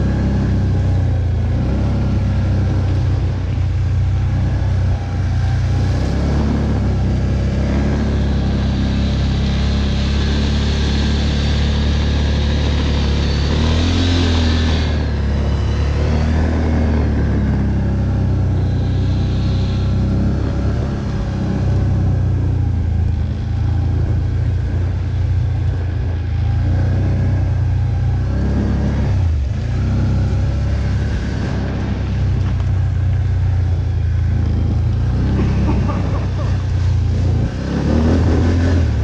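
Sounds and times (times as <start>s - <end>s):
quad bike engine under load: 28.3s - 39.0s.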